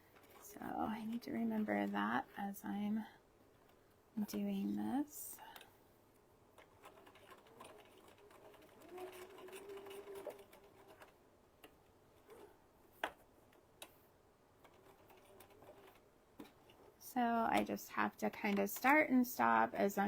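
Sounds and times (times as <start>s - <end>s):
sewing machine stitching: 6.6s - 11.2s, 14.6s - 19.1s.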